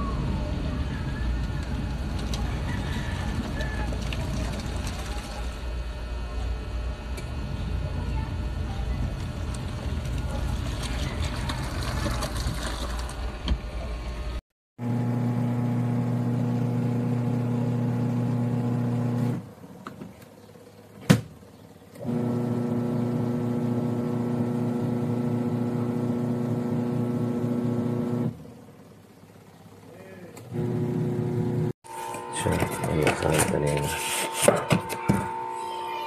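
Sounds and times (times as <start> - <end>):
rough rumbling noise: 7.4 - 14.4
electric motor humming: 30.4 - 36.0.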